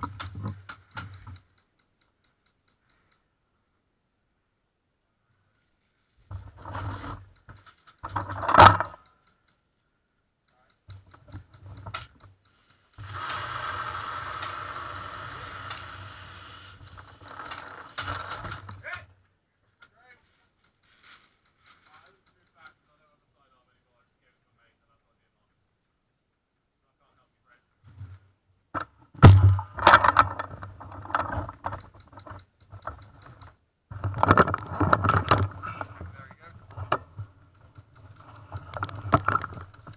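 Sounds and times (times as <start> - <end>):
clicks: 6.3 - 9.8, 10.4 - 19.1, 19.8 - 22.9, 28.8 - 39.9
mechanical whirring: 12.9 - 18.7.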